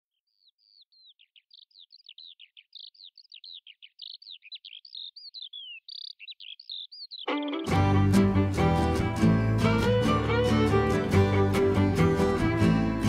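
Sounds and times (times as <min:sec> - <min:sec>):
songbird chirping and whistling: 0:00.2 - 0:07.7.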